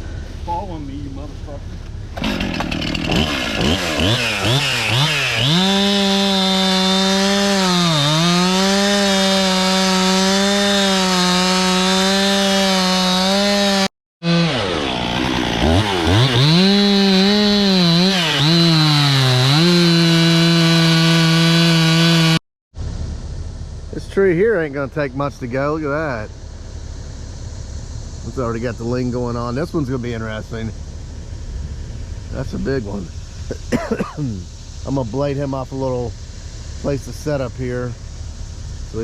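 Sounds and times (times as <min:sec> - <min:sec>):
chainsaw cutting wood: 0:02.1 - 0:22.4.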